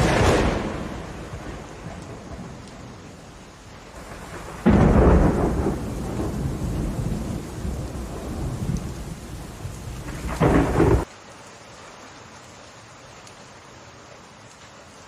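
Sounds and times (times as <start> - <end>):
thunderclaps: 0.0 - 11.1
steady rain falling: 0.0 - 15.0.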